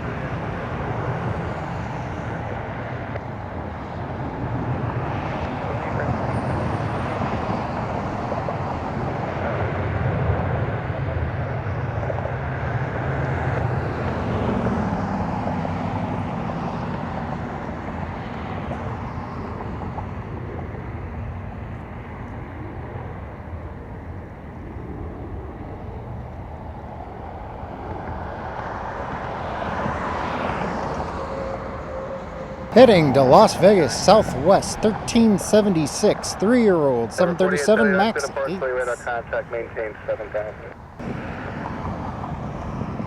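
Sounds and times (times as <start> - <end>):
jet engine rumble: 37.1 - 43.0.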